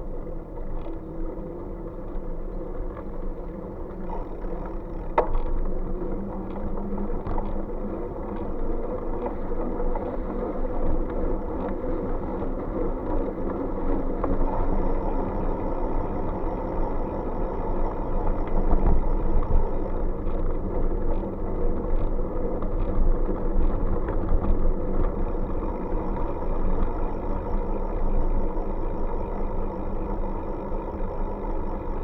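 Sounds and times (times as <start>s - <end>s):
road noise from moving bike: 0.0s - 32.0s
wind rumbling on microphone: 0.0s - 32.0s.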